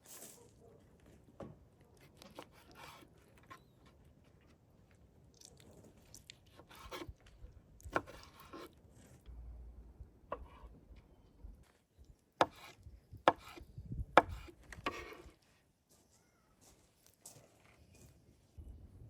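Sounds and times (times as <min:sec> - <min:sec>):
food preparation scraping and rubbing: 0:02.0 - 0:04.0, 0:05.7 - 0:09.2, 0:12.4 - 0:13.6, 0:14.2 - 0:15.4.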